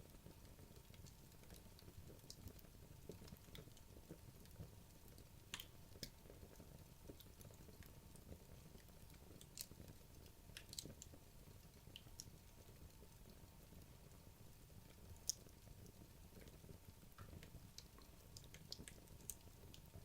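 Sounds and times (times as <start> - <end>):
logs crackling and popping: 0.8 - 12.4, 17.2 - 19.9.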